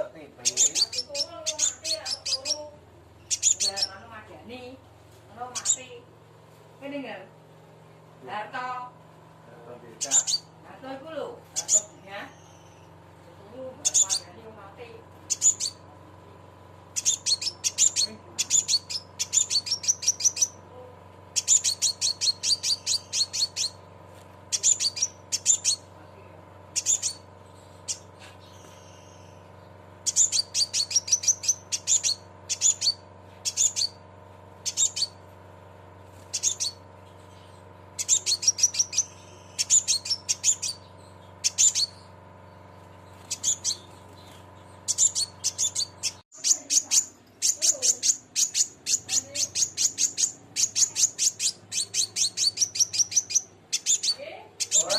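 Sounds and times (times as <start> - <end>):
steady low hum: 0.0 - 54.9
bird sharp high chirps: 0.4 - 4.1, 10.0 - 10.5, 11.6 - 13.0, 13.8 - 14.4, 15.2 - 15.8, 16.9 - 20.6, 21.3 - 23.9, 24.5 - 25.9, 26.7 - 34.0, 34.6 - 35.2, 36.1 - 54.9.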